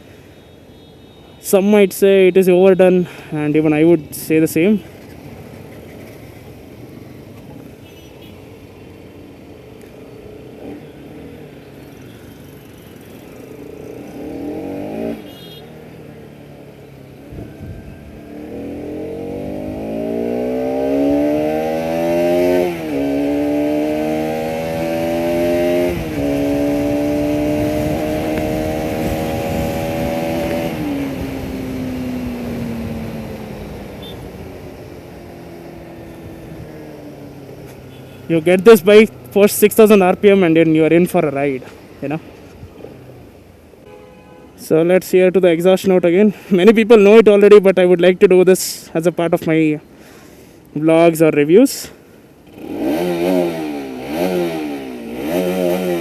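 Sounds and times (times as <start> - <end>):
motorcycle engine accelerating: 12.4 - 15.4, 17.2 - 37.6, 52.4 - 56.0.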